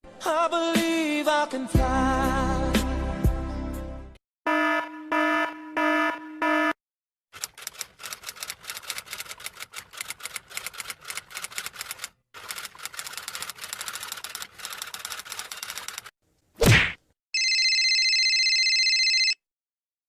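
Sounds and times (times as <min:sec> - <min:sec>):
fast typing on keyboard: 0:07.4 - 0:16.1.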